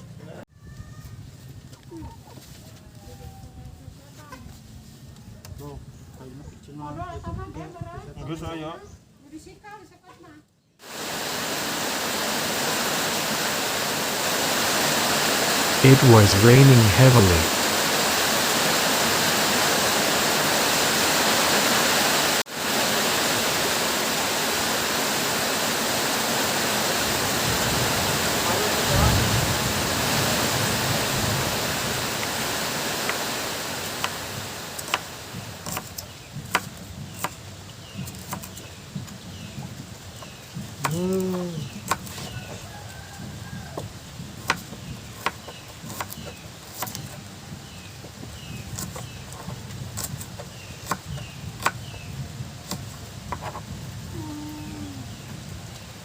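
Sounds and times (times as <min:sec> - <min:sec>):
heavy rain pouring: 0:10.8 - 0:35.6.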